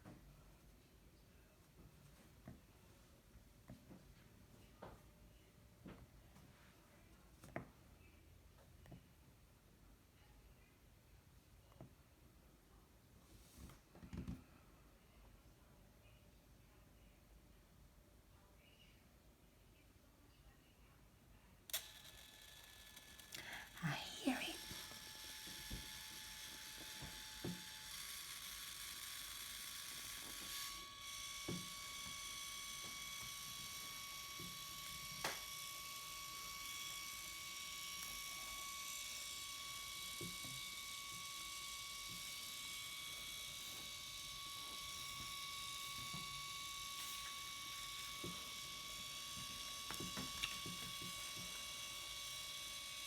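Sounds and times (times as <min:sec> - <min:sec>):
printer motor whine: 0:21.7 - 0:23.8, 0:24.6 - 0:53.0.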